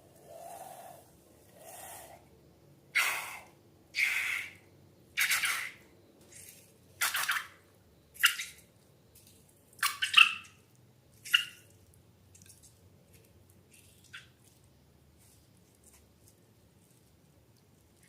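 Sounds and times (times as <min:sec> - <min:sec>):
wet slime squelching: 0:11.1 - 0:18.0.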